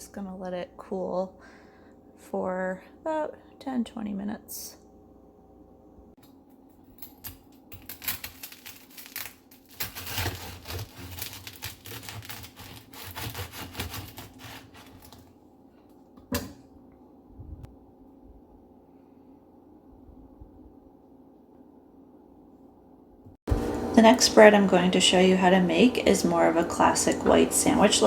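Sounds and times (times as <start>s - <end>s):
bread knife sawing crusty loaf: 9.8s - 15.2s.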